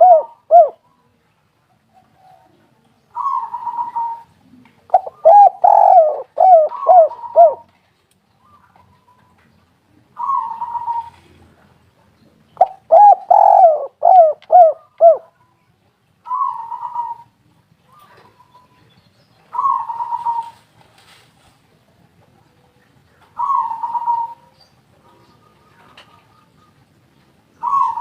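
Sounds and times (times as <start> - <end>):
doves cooing: 0.0 - 0.8, 1.9 - 7.7, 10.0 - 11.6, 12.6 - 15.3, 16.2 - 17.3, 19.5 - 20.7, 22.5 - 26.9, 27.6 - 28.0.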